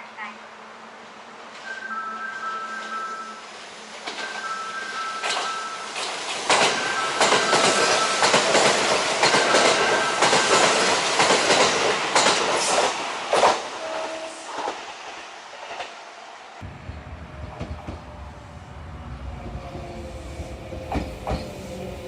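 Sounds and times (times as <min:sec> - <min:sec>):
high train tone: 0:00.0 - 0:22.0
electric train passing: 0:00.4 - 0:22.0
wheels clacking over rail joints: 0:05.2 - 0:13.7.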